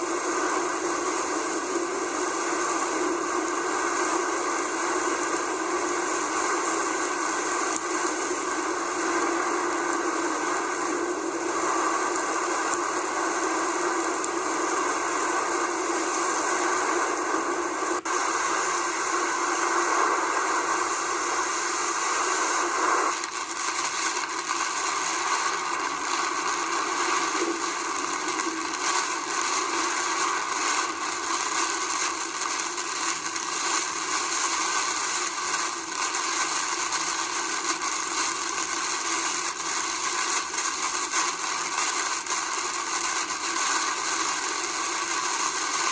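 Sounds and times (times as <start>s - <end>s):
heavy rain pouring: 22.3s - 41.1s.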